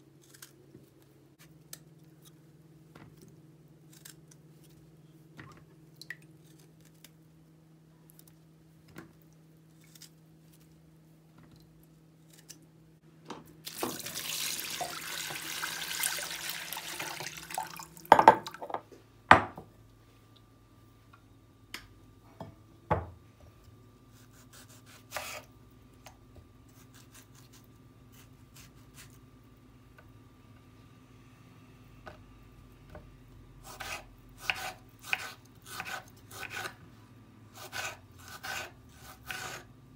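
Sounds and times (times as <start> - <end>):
tap running water: 13.7 - 18.8.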